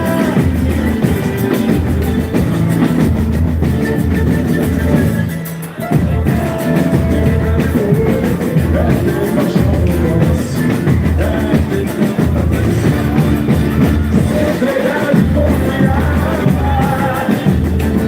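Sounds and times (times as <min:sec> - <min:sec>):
heavy drum percussion: 0:00.0 - 0:18.0
person singing: 0:00.0 - 0:18.0.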